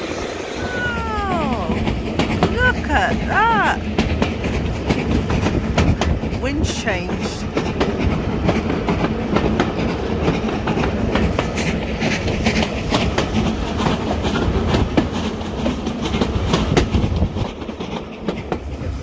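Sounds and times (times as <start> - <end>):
railway carriage rumble: 0.0 - 19.0
wheels clacking over rail joints: 3.8 - 6.4, 7.2 - 19.0.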